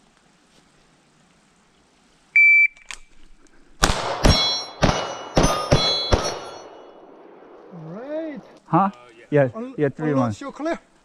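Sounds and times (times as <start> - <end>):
shot timer beep: 2.4 - 2.8
pistol shots: 3.8 - 7.6
steel target plate clanging: 4.1 - 7.1.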